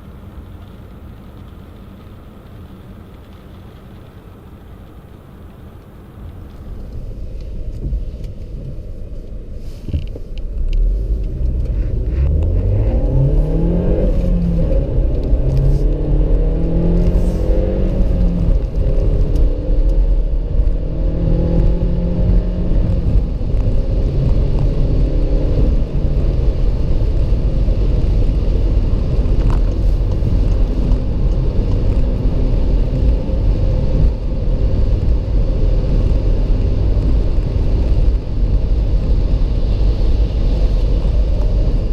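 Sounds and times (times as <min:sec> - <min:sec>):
road noise: 0:00.0 - 0:41.9
car engine accelerating: 0:10.6 - 0:41.9.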